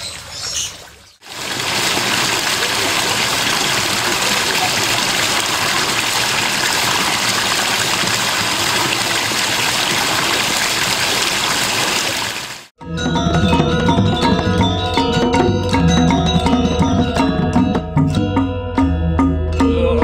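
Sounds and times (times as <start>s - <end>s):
running water rushing: 0.0s - 12.7s
music with mallet percussion: 12.8s - 20.0s.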